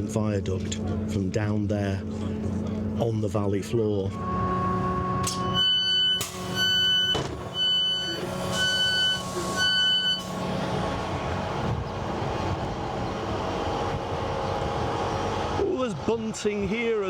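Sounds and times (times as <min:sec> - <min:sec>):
train rumble: 0:00.0 - 0:17.0
train door warning beeps: 0:05.2 - 0:10.4.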